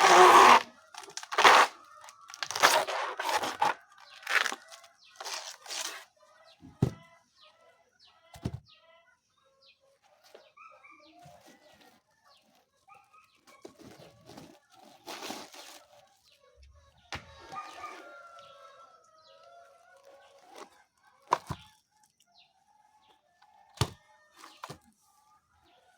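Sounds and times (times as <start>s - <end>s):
blade chopping banana stem: 0.0s - 4.6s.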